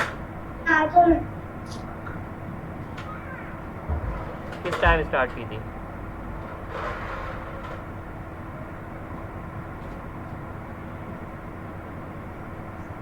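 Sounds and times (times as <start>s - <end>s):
background rumble and hiss: 0.0s - 13.0s
faint low hum: 0.0s - 13.0s.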